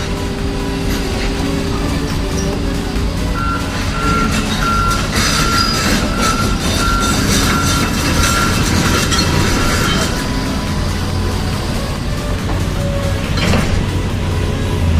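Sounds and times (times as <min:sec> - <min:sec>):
low vehicle rumble: 0:00.0 - 0:14.9
reversing alarm beeping: 0:02.0 - 0:13.5.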